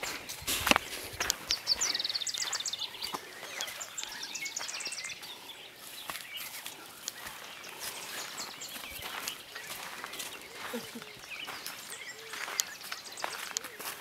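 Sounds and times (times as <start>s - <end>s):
brush rustling: 0.0s - 3.9s
footsteps: 0.0s - 14.0s
bird chirping: 1.1s - 14.0s.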